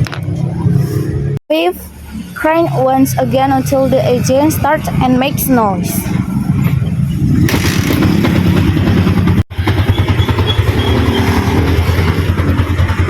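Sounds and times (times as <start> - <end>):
motorcycle engine idling: 7.6 - 13.0.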